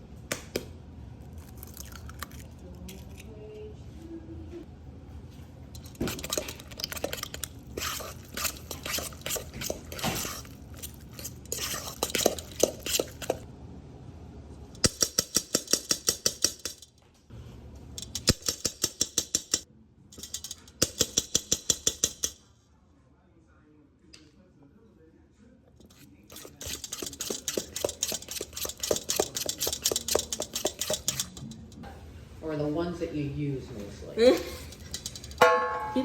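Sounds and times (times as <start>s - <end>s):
fast beating strokes against bowl: 5.8s - 13.4s, 25.8s - 31.8s
utensil scraping in bowl: 5.8s - 13.4s, 25.8s - 31.8s.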